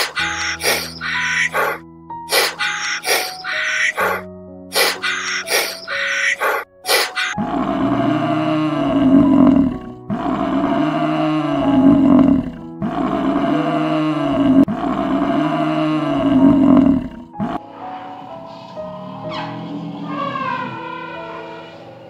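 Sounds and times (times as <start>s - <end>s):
animal roaring: 0.0s - 17.6s
soft background music: 0.0s - 22.0s.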